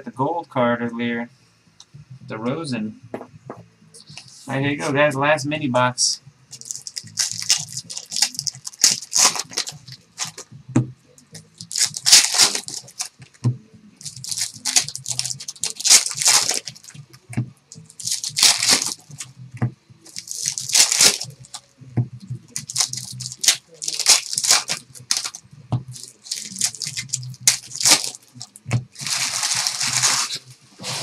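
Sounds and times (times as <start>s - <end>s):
low electrical hum: 0.0s - 31.0s
wrappers tearing and crinkling: 6.5s - 10.4s, 11.4s - 13.3s, 14.0s - 17.1s, 17.7s - 19.3s, 20.1s - 21.7s, 22.4s - 31.0s.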